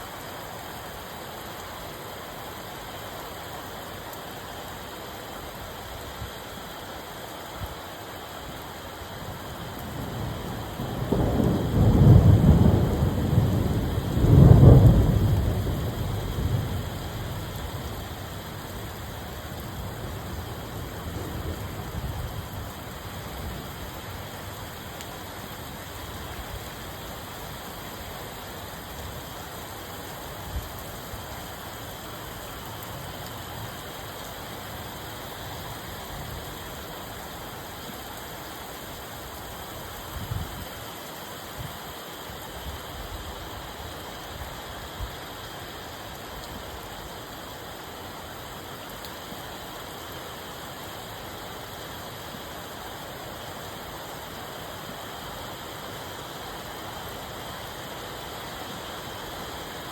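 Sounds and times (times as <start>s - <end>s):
steady rain: 0.0s - 59.9s
thunder rumbling: 9.9s - 18.1s.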